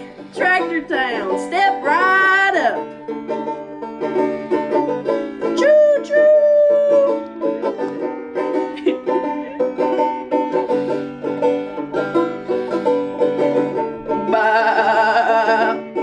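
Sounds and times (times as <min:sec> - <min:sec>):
plucked string picking: 0:00.0 - 0:16.0.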